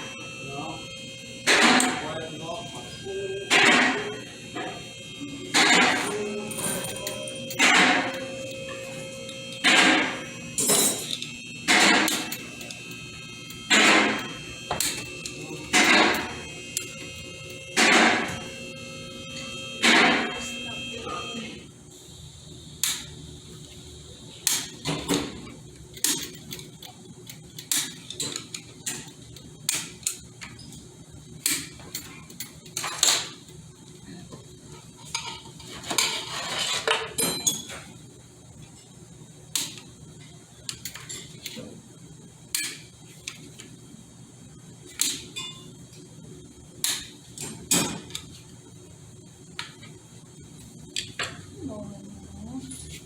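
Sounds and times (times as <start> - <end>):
metal tools clinking on metal: 6.5 - 8.2.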